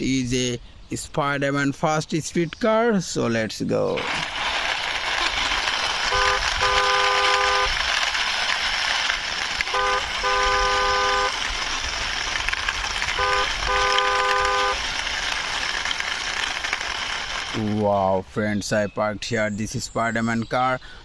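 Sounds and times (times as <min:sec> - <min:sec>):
car horn honking: 0:06.1 - 0:07.8, 0:09.6 - 0:11.4, 0:13.1 - 0:14.8.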